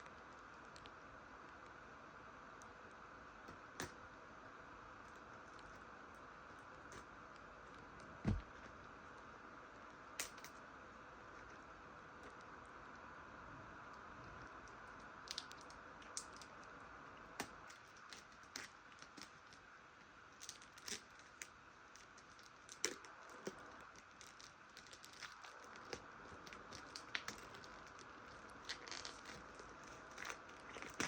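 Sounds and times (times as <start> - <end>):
plastic wrap crinkling and tearing: 22.0 - 31.0.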